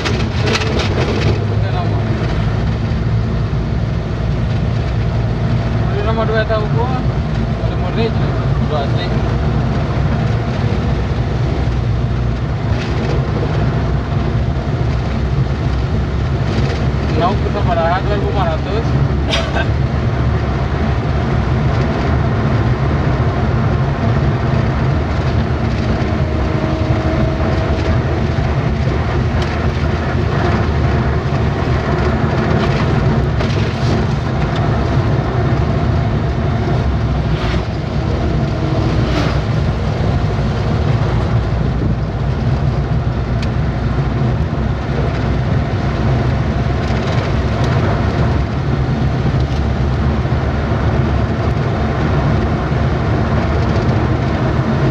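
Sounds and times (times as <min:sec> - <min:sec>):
knocks and rattles: 0:00.0 - 0:02.9
truck engine and road rumble: 0:00.0 - 0:54.9.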